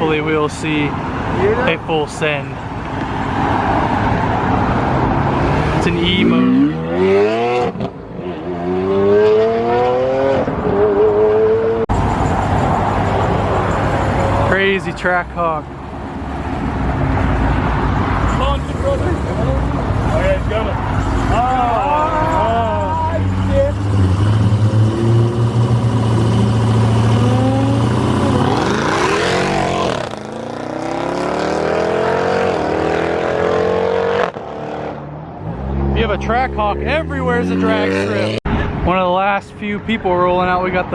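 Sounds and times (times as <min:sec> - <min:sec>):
car engine accelerating: 0:16.6 - 0:38.4.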